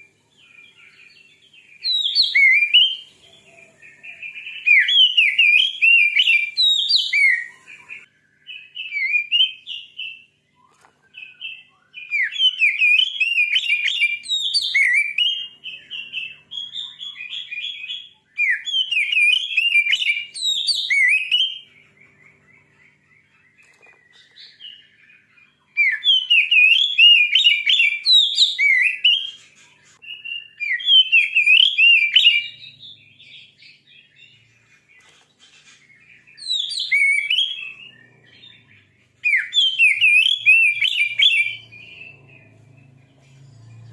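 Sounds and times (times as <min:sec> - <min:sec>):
songbird singing whistles and chatter: 0:00.0 - 0:43.9.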